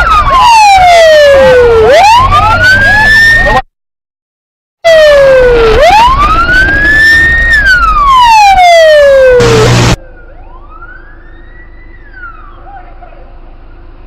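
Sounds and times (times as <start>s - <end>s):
police siren wailing: 0.0s - 3.6s, 4.8s - 13.2s
road noise rumble: 9.0s - 14.0s.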